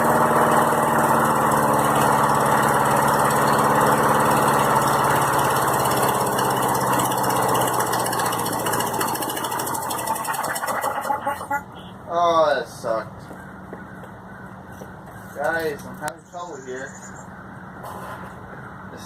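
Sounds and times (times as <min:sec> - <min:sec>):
lawnmower engine running: 0:00.0 - 0:11.9.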